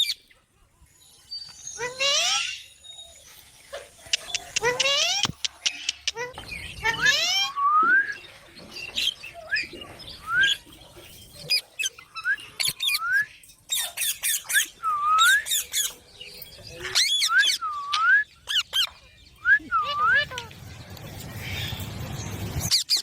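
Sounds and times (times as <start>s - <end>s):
parrot chirping and squawking: 1.8s - 2.8s, 4.1s - 7.6s, 11.2s - 13.0s, 13.7s - 16.0s, 16.7s - 17.6s, 18.4s - 18.9s, 19.8s - 23.0s.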